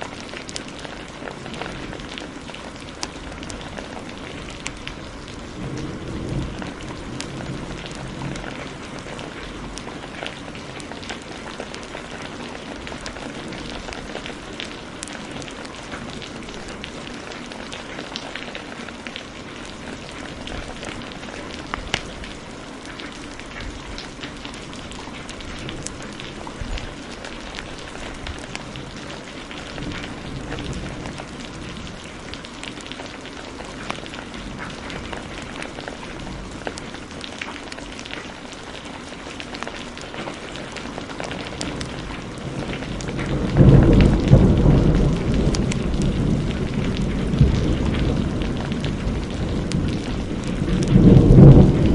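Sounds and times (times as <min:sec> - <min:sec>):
fire popping: 0:00.0 - 0:05.8, 0:06.4 - 0:18.3, 0:19.9 - 0:38.6
heavy rain: 0:00.0 - 0:51.9.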